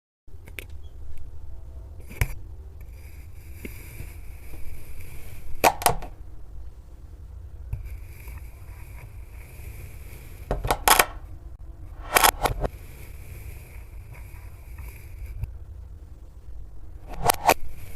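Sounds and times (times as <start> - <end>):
steady low hum: 0.3 - 17.9.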